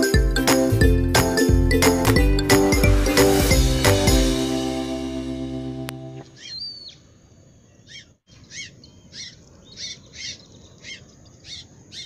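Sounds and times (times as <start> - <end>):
background music: 0.0 - 6.3
bird calling sharply: 6.3 - 7.1.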